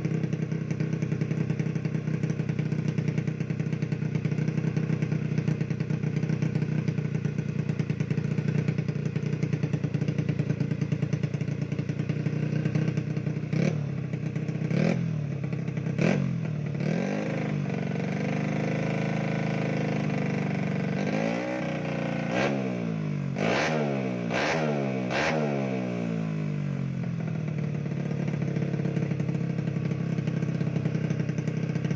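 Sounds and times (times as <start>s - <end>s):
scooter engine idling and revving: 0.0s - 31.9s.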